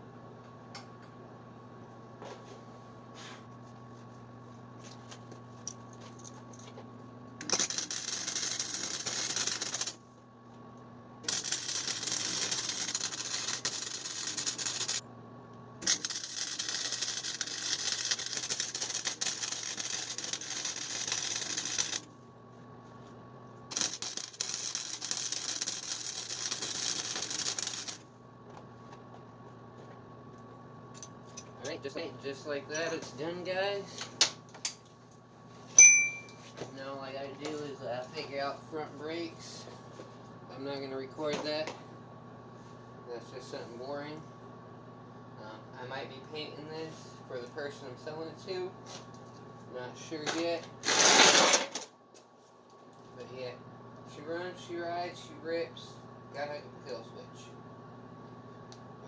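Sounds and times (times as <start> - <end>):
electrical hum: 0.0 - 51.2
arc welder crackling: 7.3 - 10.1, 11.2 - 22.2, 23.6 - 28.1.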